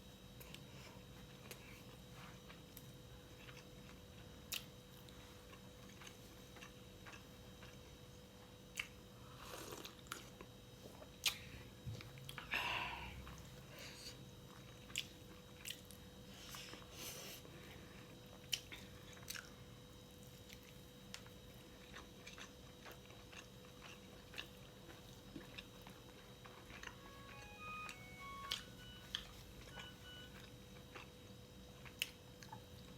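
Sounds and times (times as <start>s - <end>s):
chewing food: 0.4s - 12.5s, 13.2s - 16.9s, 18.0s - 32.9s.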